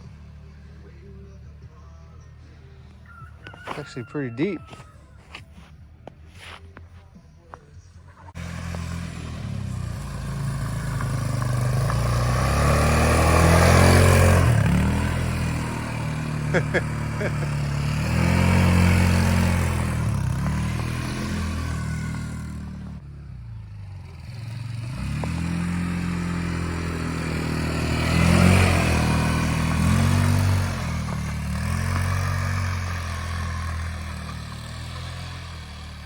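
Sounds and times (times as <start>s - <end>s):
car engine revving: 8.2s - 36.0s.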